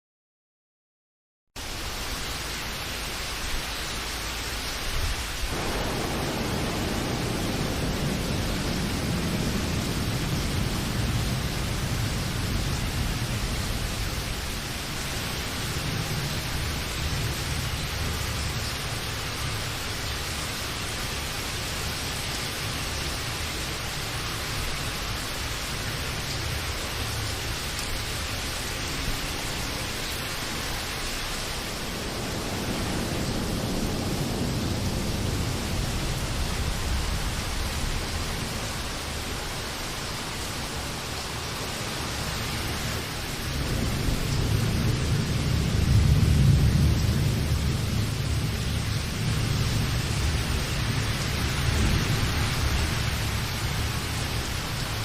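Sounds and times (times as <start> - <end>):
steady rain falling: 1.6 - 55.0.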